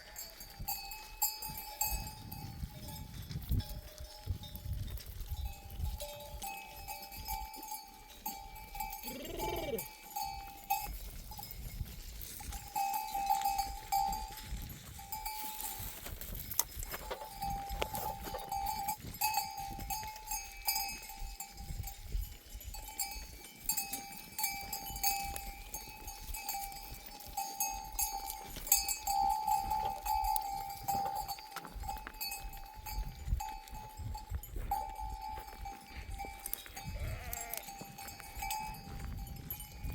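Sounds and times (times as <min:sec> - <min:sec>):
sheep bells ringing: 0:00.0 - 0:39.9
sheep bleat: 0:09.0 - 0:10.0, 0:36.8 - 0:37.8.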